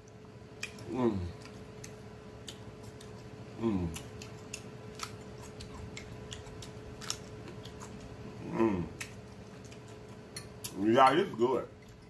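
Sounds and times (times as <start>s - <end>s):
chewing and lip smacking: 0.0s - 10.8s, 11.7s - 12.0s
faint steady hum: 0.0s - 12.0s
person humming mm: 0.8s - 1.4s, 3.6s - 4.1s, 8.4s - 9.0s.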